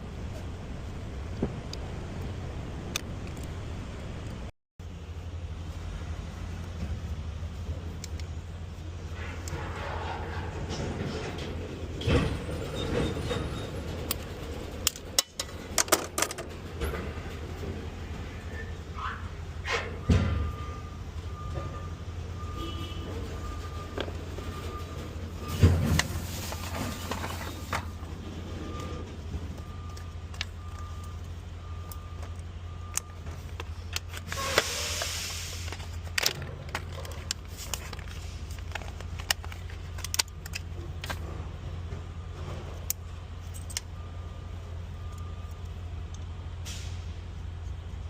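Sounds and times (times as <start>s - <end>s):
faint beep: 20.2s - 25.0s, 44.0s - 45.6s
short hiss: 34.4s - 35.7s.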